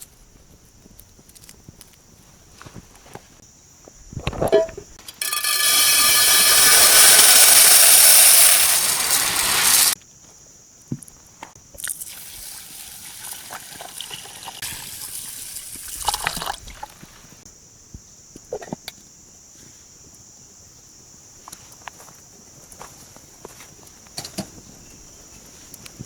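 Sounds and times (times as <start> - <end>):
water pouring: 5.1 - 10.0, 11.8 - 17.3.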